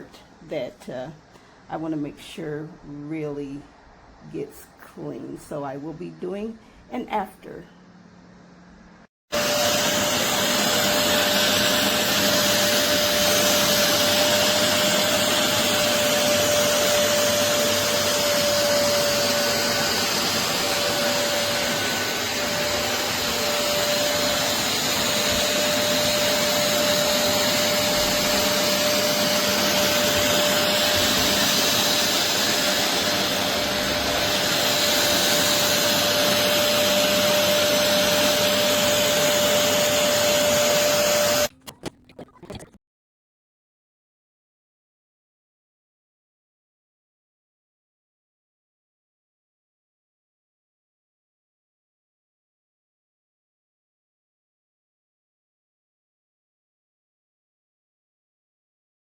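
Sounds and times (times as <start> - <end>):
carpet cleaner suction motor: 9.3 - 41.9.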